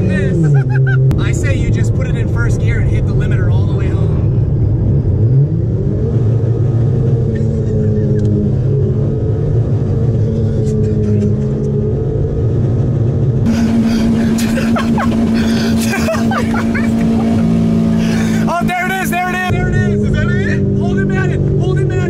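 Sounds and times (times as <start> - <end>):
car engine running: 0.0 - 22.0
rush of broad noise: 13.5 - 18.6.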